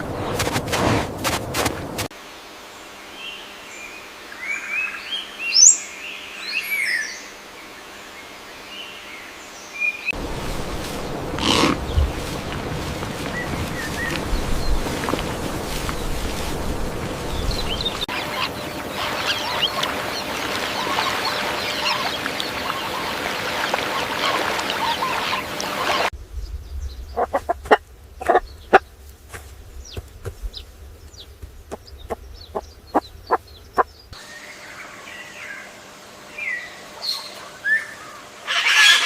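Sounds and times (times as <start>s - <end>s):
chickens clucking: 17.3s - 26.1s, 27.1s - 28.9s, 29.9s - 34.0s.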